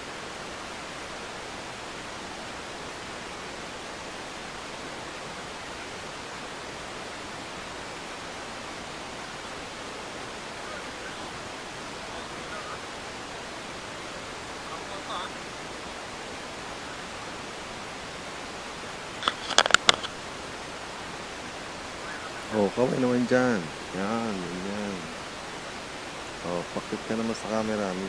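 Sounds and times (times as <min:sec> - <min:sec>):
faint distant voices: 0:00.0 - 0:28.0
steady background hiss: 0:00.0 - 0:28.0.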